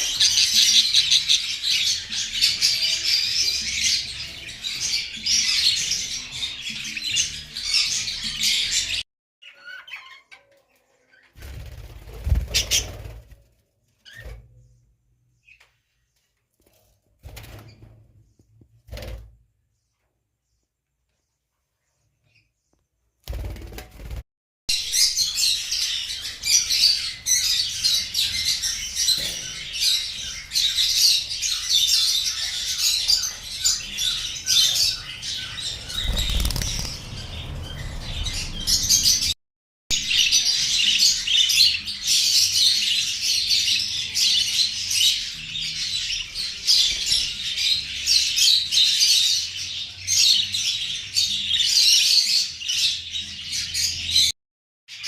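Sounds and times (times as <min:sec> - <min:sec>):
flock of small birds chirping: 0:00.0 - 0:13.3, 0:24.9 - 0:39.4, 0:40.0 - 0:55.0.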